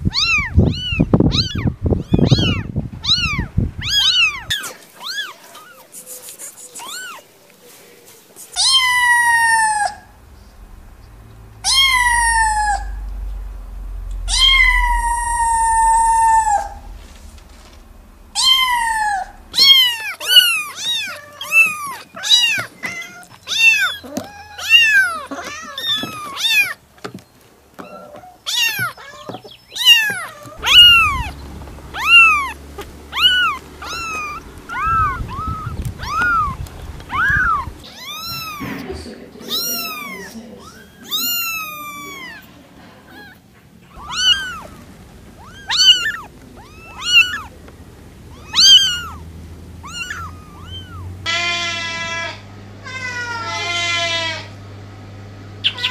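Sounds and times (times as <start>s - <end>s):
kittens meowing: 0.0s - 7.3s, 8.5s - 26.8s, 27.8s - 54.6s.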